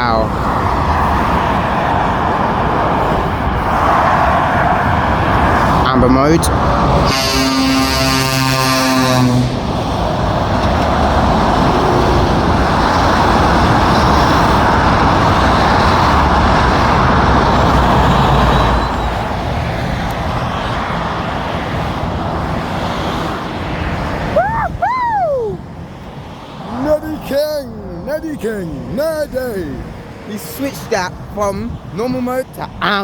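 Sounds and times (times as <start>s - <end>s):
heavy motorway traffic: 0.0s - 33.0s
horn: 7.0s - 9.6s.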